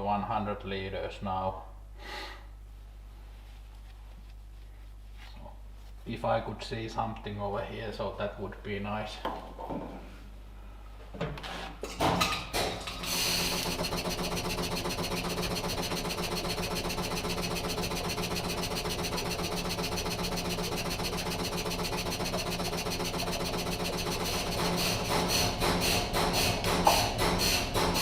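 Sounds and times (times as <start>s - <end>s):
tractor diesel engine starting and idling: 12.6s - 28.0s.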